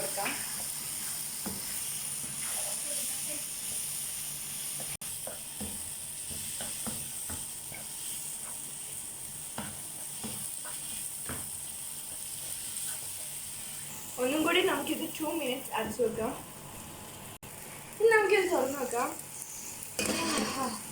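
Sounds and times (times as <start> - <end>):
food sizzling in oil: 0.0 - 20.9
spoon knocking and scraping pan: 0.2 - 2.7, 4.8 - 13.6.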